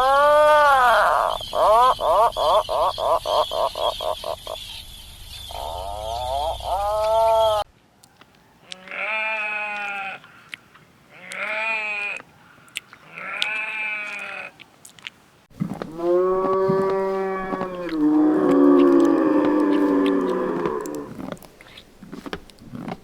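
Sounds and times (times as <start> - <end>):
farm animals bleating: 8.6 - 14.6, 15.9 - 21.2.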